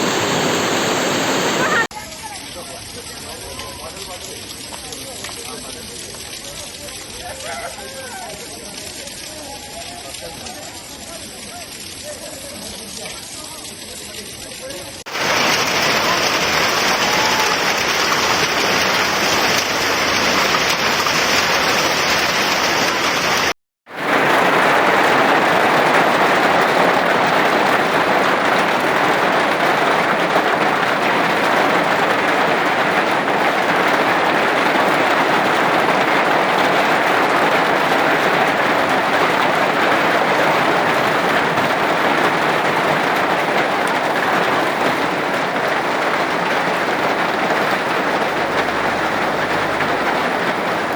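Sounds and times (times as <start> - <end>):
hail and heavy rain pelting: 0.0 - 50.9.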